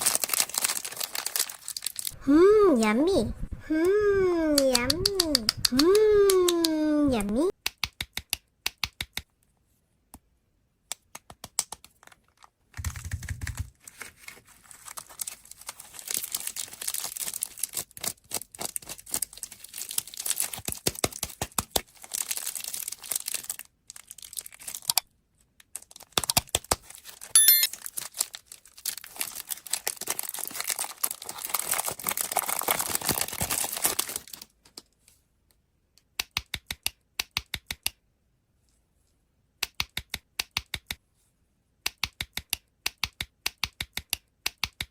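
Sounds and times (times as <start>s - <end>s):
plastic wrappers crinkling: 0.0s - 2.2s, 13.8s - 25.0s, 25.8s - 34.8s.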